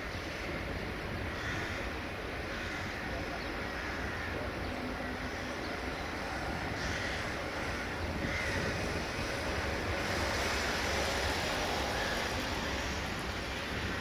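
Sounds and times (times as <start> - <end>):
distant freight train rolling: 0.0 - 14.0
wind on microphone: 6.2 - 14.0.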